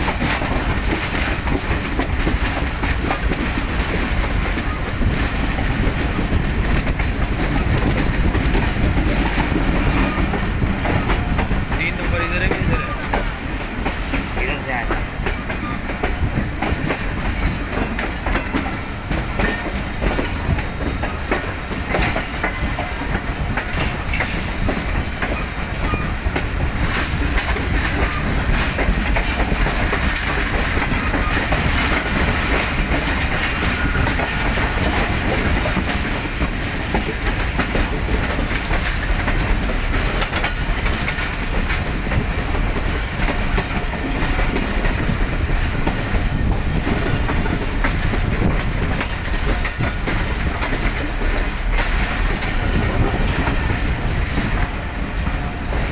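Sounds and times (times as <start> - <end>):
train rumbling on rails: 0.0 - 55.9
wheels clattering over rail joints: 0.0 - 55.9.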